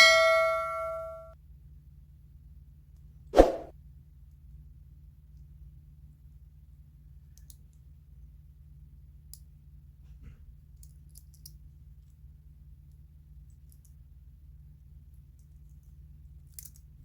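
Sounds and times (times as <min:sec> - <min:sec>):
light clicks of small tools: 0:07.2 - 0:08.4, 0:09.3 - 0:12.2, 0:12.8 - 0:14.0, 0:15.1 - 0:17.0.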